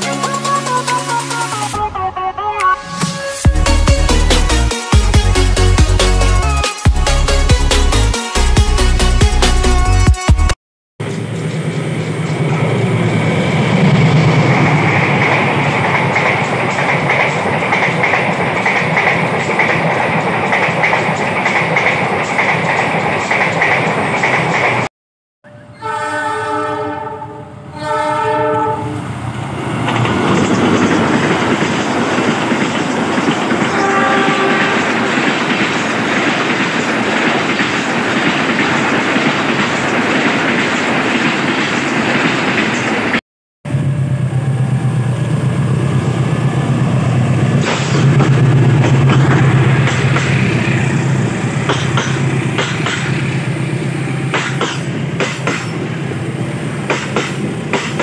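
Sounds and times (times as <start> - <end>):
train passing at speed: 0.0 - 9.1, 11.0 - 24.9, 25.5 - 58.0
train engine hum: 0.0 - 9.9, 11.0 - 24.9, 25.5 - 58.0
train horn: 25.4 - 29.1, 33.7 - 35.3
wheels clicking over rail joints: 51.7 - 53.2.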